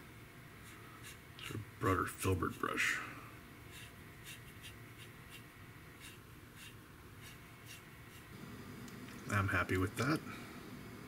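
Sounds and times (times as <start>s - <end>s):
paintbrush swishes on plastic: 3.7s - 8.4s.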